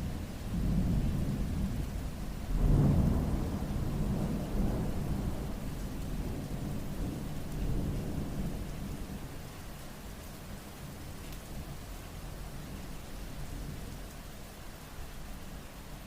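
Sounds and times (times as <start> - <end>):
steady rain: 0.0 - 16.0
thunder rumbling: 2.5 - 8.7.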